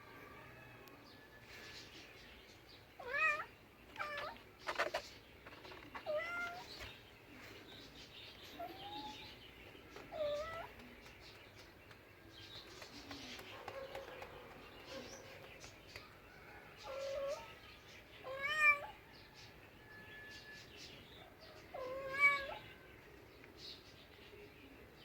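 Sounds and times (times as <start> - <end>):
cat meowing: 3.0 - 4.4, 6.0 - 6.6, 18.2 - 19.0, 21.7 - 22.7.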